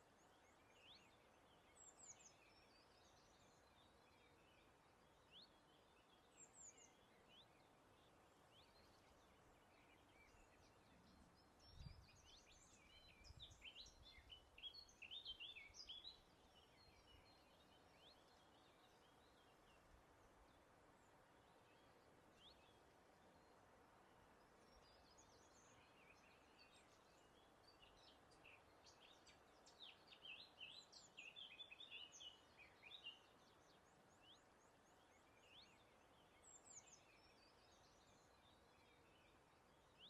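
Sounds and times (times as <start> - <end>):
birdsong chirps: 0.0 - 40.0.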